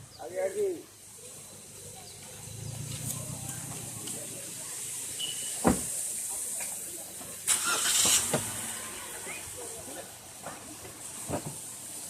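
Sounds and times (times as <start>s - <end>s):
waterfall rushing: 3.3s - 10.4s
thump: 5.6s - 6.0s, 11.3s - 11.6s.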